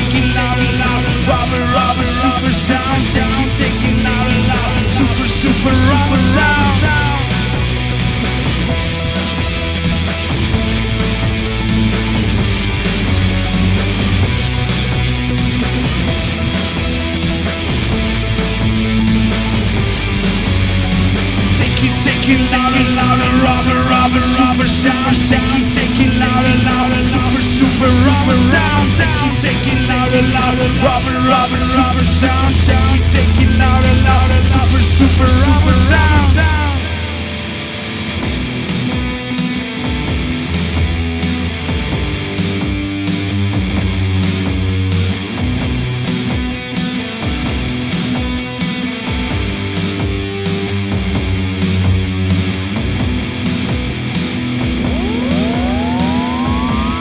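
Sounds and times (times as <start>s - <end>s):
sustained bass line: 0.0s - 39.2s, 50.9s - 57.0s
loud electronic rock music: 0.0s - 57.0s
lead melody with bending notes: 18.0s - 38.1s, 54.4s - 57.0s.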